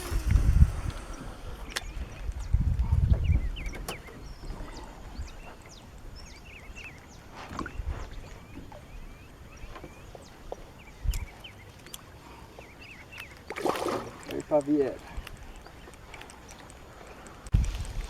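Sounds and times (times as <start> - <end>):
small birds chirping: 0.0 - 17.5.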